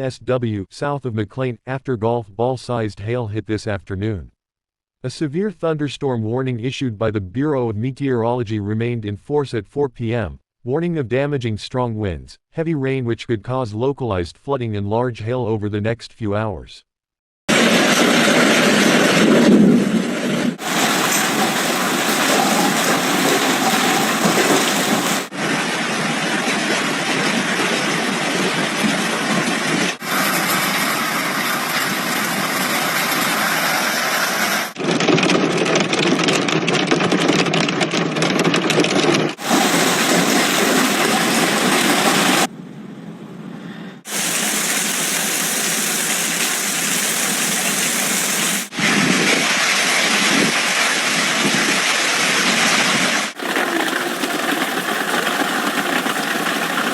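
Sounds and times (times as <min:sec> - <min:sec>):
hail and rain pelting down: 0:20.6 - 0:33.0, 0:38.9 - 0:42.5, 0:44.1 - 0:48.7, 0:53.4 - 0:56.9.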